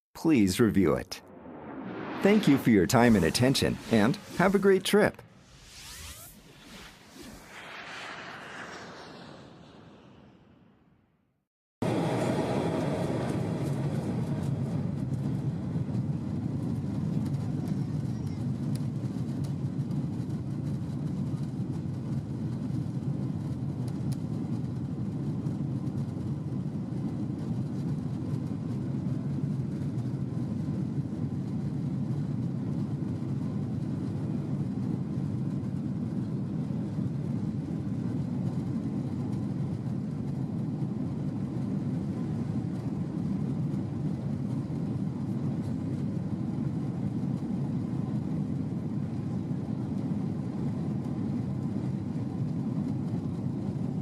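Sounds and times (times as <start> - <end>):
aircraft engines droning: 0.4 - 11.1, 11.8 - 54.0
rushing air: 1.1 - 11.2.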